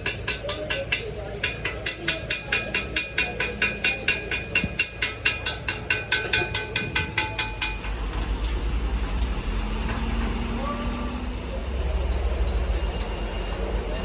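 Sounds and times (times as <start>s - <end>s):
rapid metallic clicking: 0.0s - 10.6s
low engine rumble: 0.0s - 14.0s.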